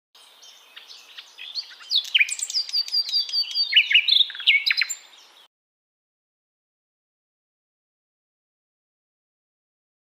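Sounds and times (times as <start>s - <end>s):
songbirds chirping and singing: 0.2s - 5.5s.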